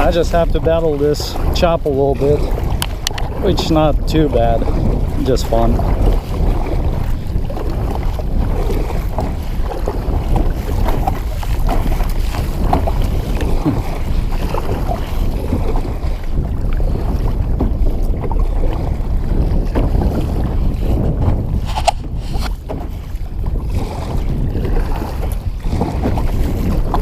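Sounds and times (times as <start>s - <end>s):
water slapping against kayak: 0.0s - 27.0s
wind buffeting microphone: 0.0s - 27.0s.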